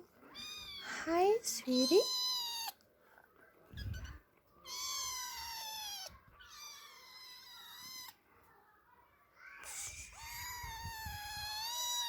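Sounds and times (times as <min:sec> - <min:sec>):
kittens meowing: 0:01.7 - 0:02.8, 0:03.8 - 0:08.2, 0:10.0 - 0:12.0.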